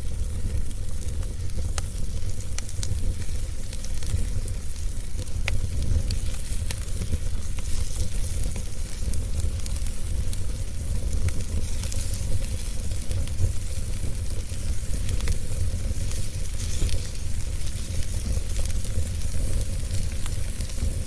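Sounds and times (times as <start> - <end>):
fire popping and snapping: 0.0 - 21.0
wood fire crackling: 0.0 - 21.0.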